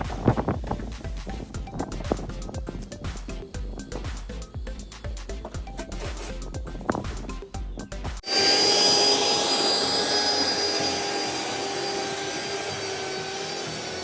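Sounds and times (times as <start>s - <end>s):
background music with a beat: 0.0s - 8.3s
whirring machine with high whine: 8.2s - 14.0s.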